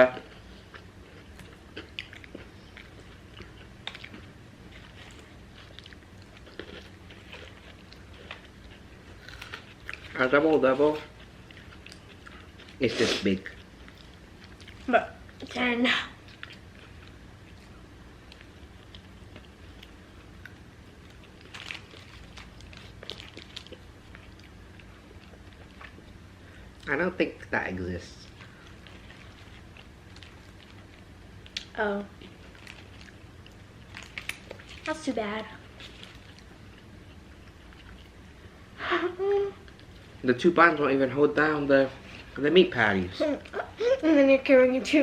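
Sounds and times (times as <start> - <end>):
people chewing food: 0.0 - 27.0, 27.6 - 45.0
crunchy crackles: 1.1 - 10.3, 10.9 - 26.2, 28.2 - 38.4.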